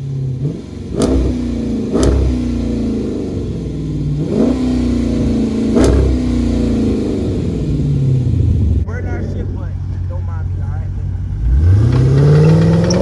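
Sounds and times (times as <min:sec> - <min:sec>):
car engine throttle blips: 0:00.0 - 0:13.0.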